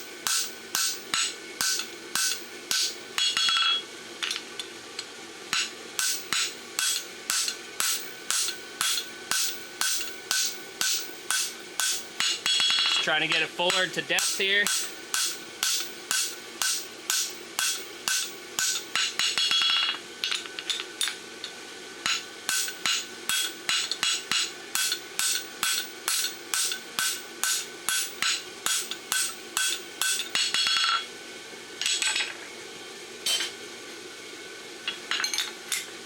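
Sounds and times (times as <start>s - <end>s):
hammer ringing on anvil: 0.3s - 3.8s, 5.6s - 13.1s, 13.7s - 20.0s, 22.0s - 31.0s.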